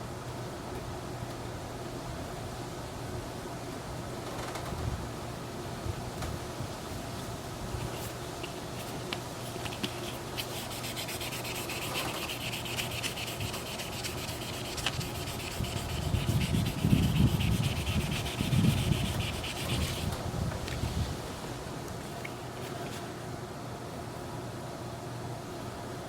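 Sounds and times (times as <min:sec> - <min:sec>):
sanding pad rasping on plastic: 0:09.5 - 0:20.2.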